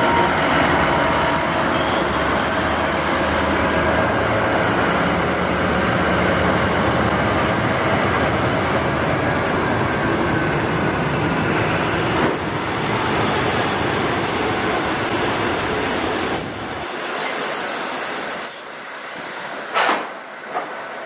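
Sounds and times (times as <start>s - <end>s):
high wheel squeal: 15.4s - 19.5s.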